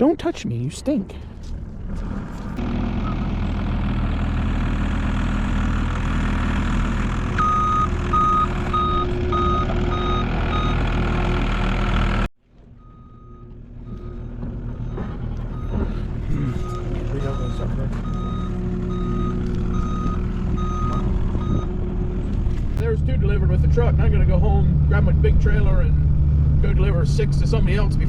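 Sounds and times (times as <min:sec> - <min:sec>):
truck engine running: 0:00.0 - 0:28.0
reversing beeper: 0:07.4 - 0:11.2, 0:12.8 - 0:21.8.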